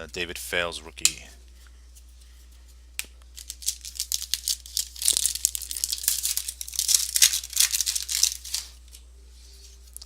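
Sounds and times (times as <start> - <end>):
foil wrapper crinkling and tearing: 3.4 - 9.0.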